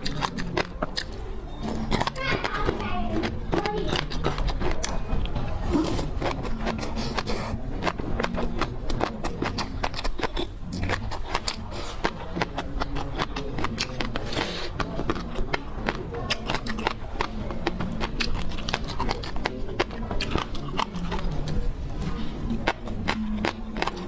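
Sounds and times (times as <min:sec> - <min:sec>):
wet chewing clicks and smacks: 0:00.0 - 0:24.0.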